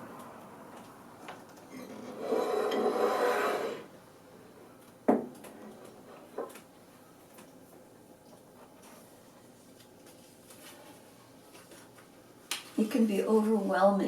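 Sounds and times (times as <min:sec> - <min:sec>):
rubbing and rustling handling noise: 0:08.4 - 0:13.0.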